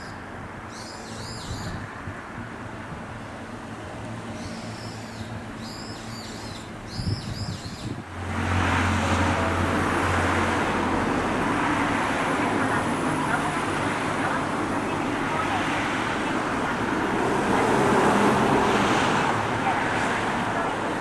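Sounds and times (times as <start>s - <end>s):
small birds chirping: 0.0s - 1.8s, 4.3s - 8.0s
train rushing: 8.1s - 21.0s.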